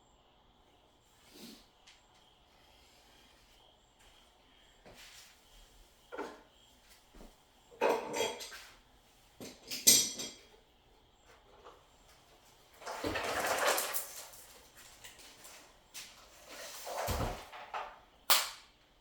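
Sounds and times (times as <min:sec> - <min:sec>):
rustling and scraping: 0:11.6 - 0:17.9.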